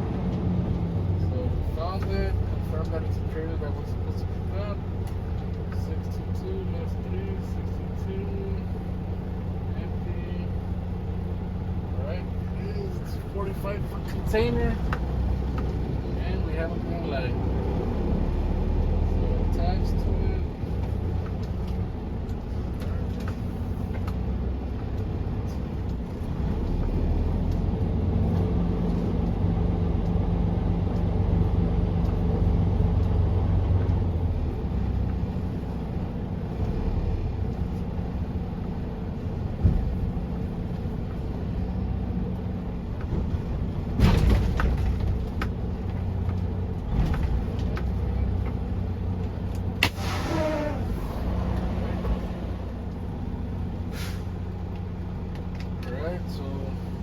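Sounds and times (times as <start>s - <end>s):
diesel truck engine running: 0.0s - 57.0s
sharp clunks: 49.8s - 50.3s.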